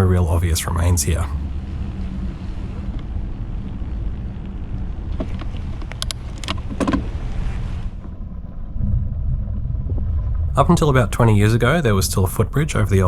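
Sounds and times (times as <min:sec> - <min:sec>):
bike tyres rolling on pavement: 0:01.4 - 0:11.8
sharp clicks and rattles: 0:05.1 - 0:07.1.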